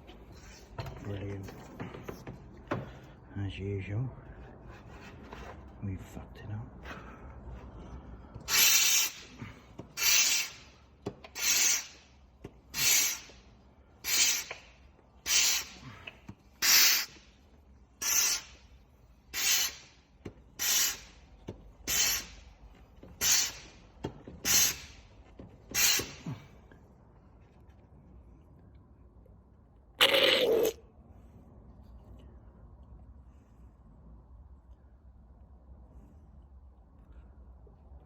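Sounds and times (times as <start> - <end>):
hand suction pump hissing: 8.5 - 9.4, 10.0 - 12.0, 12.7 - 13.4, 14.0 - 15.8, 16.6 - 17.2, 18.0 - 18.6, 19.3 - 19.9, 20.6 - 21.1, 21.9 - 22.4, 23.2 - 23.7, 24.4 - 25.0, 25.7 - 26.2.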